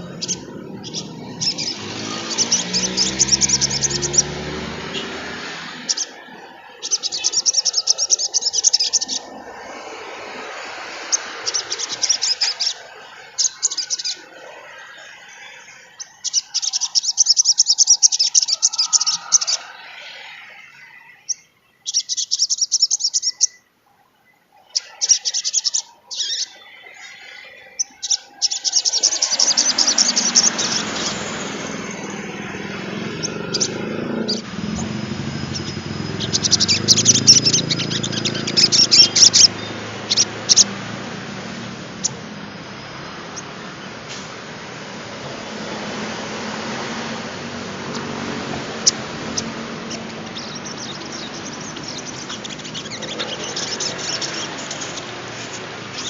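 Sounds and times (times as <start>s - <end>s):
songbird chattering song: 0.0s - 42.6s, 47.8s - 56.0s.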